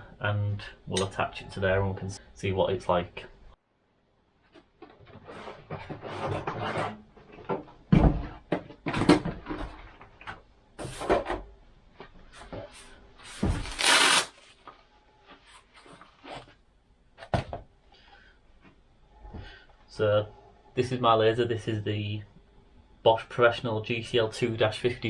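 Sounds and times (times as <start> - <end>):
objects knocking and clunking: 4.6 - 11.4
scraping or rustling burst: 13.5 - 14.3.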